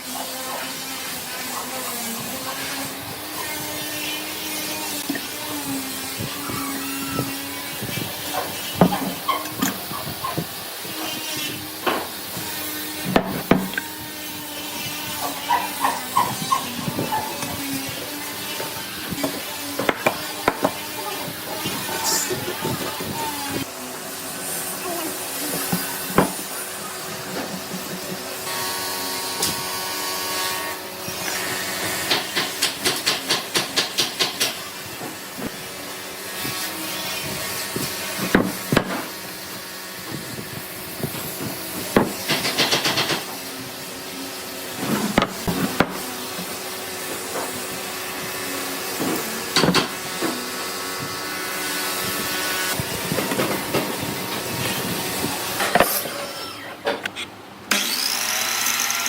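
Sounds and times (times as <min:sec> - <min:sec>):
hand tool working wood: 0:00.0 - 0:23.7, 0:24.7 - 0:28.5, 0:36.4 - 0:47.8, 0:53.0 - 0:57.2
sharp knocks on wood: 0:13.2 - 0:13.8
scraping on wood: 0:44.8 - 0:47.6.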